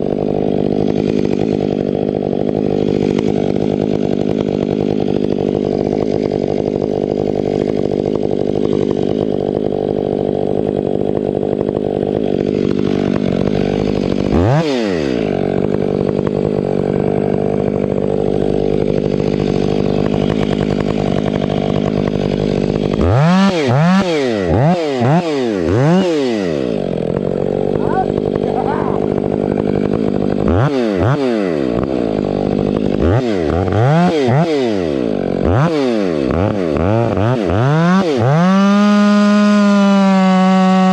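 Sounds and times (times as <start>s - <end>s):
chainsaw running at high revs: 0.0s - 40.9s.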